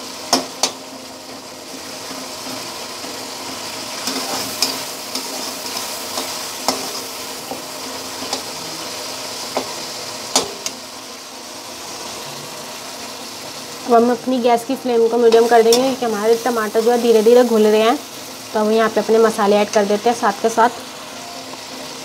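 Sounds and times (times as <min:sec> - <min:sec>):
vegetables sizzling in oil: 0:00.0 - 0:22.0
spatula scraping and clicking pan: 0:02.0 - 0:08.5.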